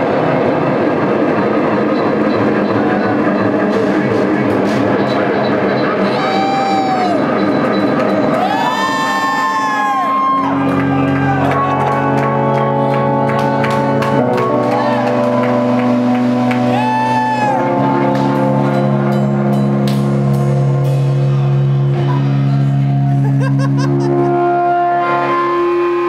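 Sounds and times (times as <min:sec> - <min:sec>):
long bending high notes: 0:00.0 - 0:26.0
live rock band playing: 0:09.5 - 0:26.0.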